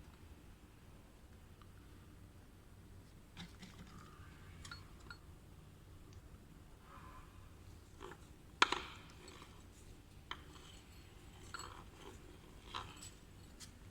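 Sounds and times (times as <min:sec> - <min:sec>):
sharp clinks and knocks: 0:10.3 - 0:13.8.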